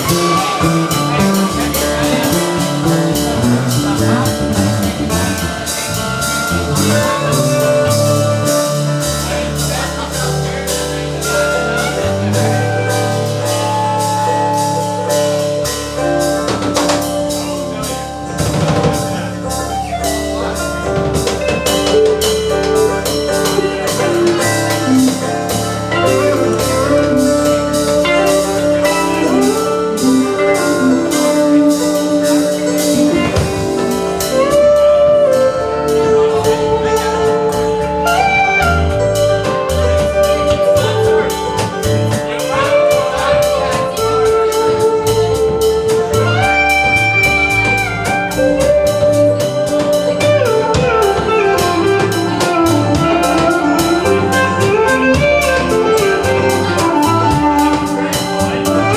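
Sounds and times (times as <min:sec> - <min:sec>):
drum kit beat: 0:00.0 - 0:58.9
live country band playing: 0:00.0 - 0:58.9.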